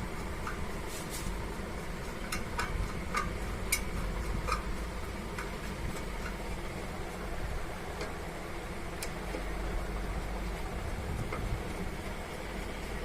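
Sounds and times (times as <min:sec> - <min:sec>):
steady low hum: 0:00.0 - 0:13.0
light clicks and taps of tools: 0:02.2 - 0:04.7.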